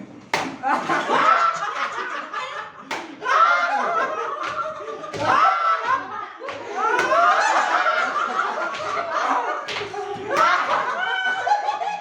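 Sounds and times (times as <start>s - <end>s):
sharp smacks: 0.3s - 0.6s, 2.9s - 3.2s
people laughing: 0.5s - 12.0s.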